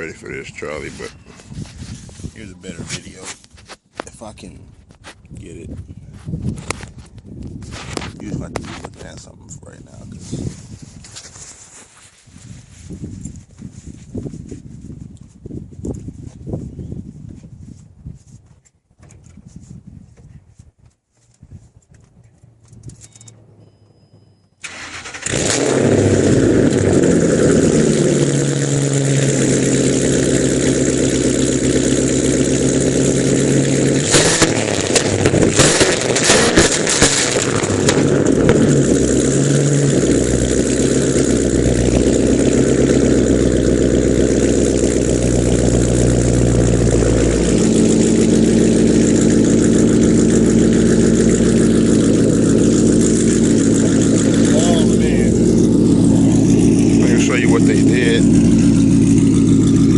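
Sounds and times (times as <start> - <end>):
car engine starting and idling: 0.0 - 3.2, 22.4 - 59.9.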